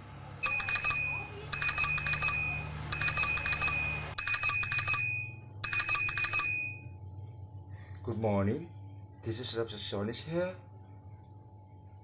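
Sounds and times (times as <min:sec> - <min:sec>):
telephone ringing: 0:00.4 - 0:08.3.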